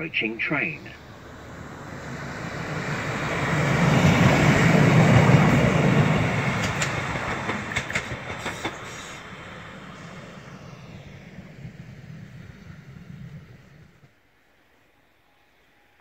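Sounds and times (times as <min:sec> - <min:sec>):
diesel railcar passing: 0:00.0 - 0:16.0
wheel clicks on track: 0:06.6 - 0:08.8.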